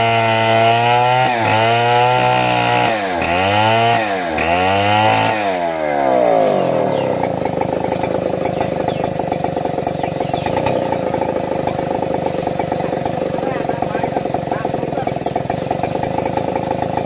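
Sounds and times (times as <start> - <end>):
chainsaw engine running: 0.0 - 17.0.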